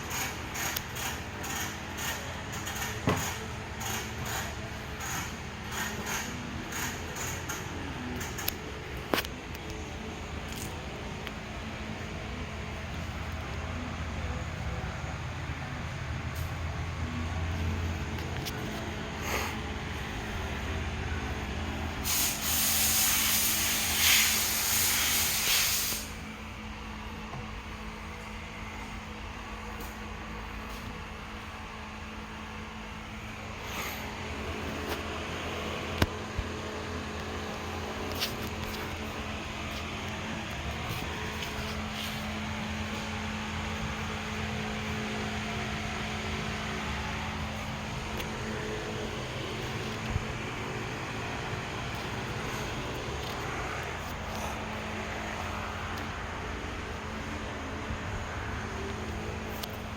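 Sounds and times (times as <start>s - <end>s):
steady low hum: 0.0s - 59.9s
loud hiss: 22.0s - 26.3s.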